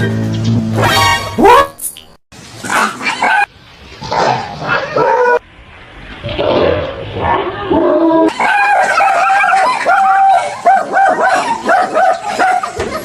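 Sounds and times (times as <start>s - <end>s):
dog barking and yelping: 0.8s - 1.8s, 2.7s - 3.5s, 4.1s - 5.4s, 8.3s - 13.0s.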